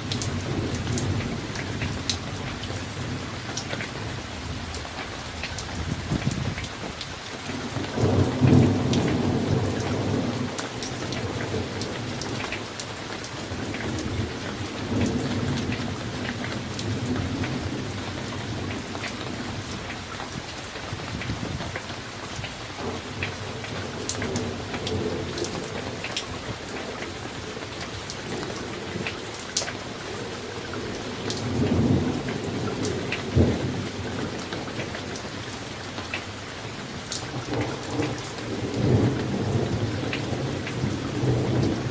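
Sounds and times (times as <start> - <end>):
raindrops ticking: 0.0 - 41.9
steady rain falling: 0.0 - 41.9
rolling thunder: 5.6 - 6.8, 7.6 - 12.6, 30.3 - 35.1, 37.3 - 41.9.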